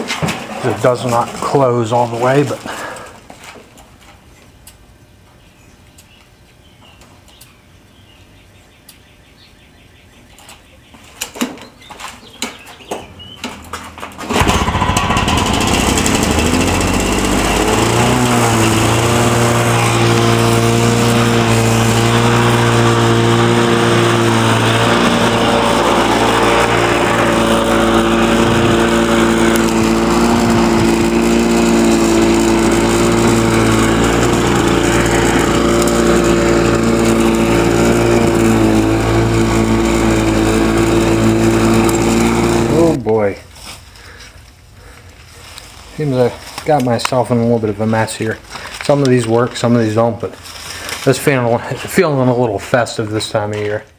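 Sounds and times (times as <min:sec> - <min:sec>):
mower engine starting and running: 0:00.0 - 0:03.2, 0:13.0 - 0:43.1.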